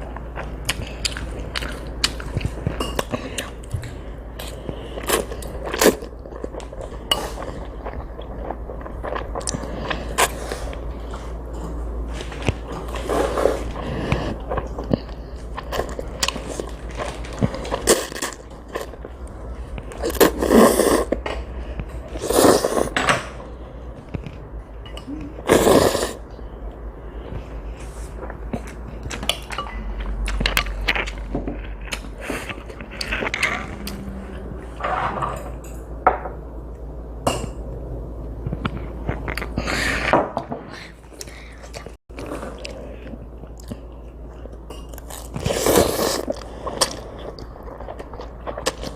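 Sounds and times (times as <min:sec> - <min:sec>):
wet chewing of noodles: 0:00.0 - 0:22.9, 0:25.4 - 0:34.4, 0:41.1 - 0:48.9
utensils clinking against a bowl: 0:02.7 - 0:03.4, 0:29.2 - 0:31.1, 0:34.8 - 0:36.0.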